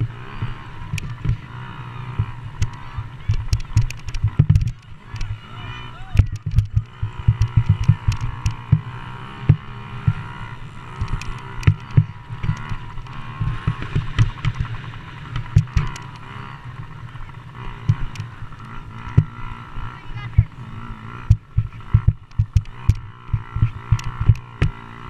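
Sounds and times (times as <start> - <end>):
dirt bike engines racing: 0.0 - 25.0
low thumps on microphone: 6.2 - 8.8, 21.3 - 24.8.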